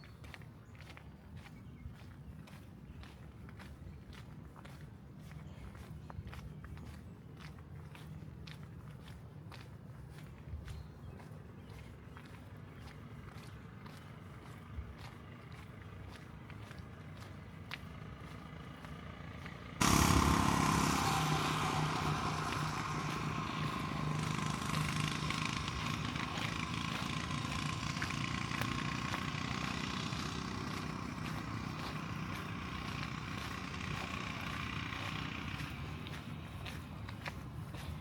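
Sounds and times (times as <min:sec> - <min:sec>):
motor engine running: 0:11.1 - 0:38.0.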